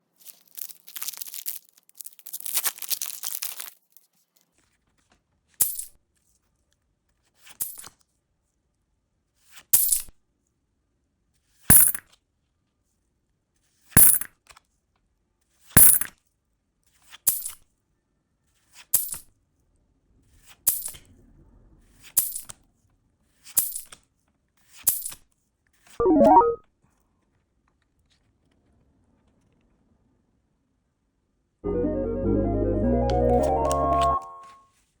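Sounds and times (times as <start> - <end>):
foil wrapper crinkling: 0.2 - 3.7.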